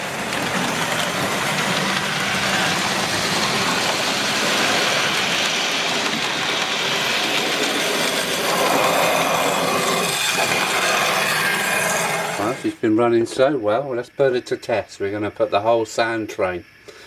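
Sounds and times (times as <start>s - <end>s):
model train motor whirring: 0.0s - 12.8s
wheels rolling on track: 0.0s - 12.8s.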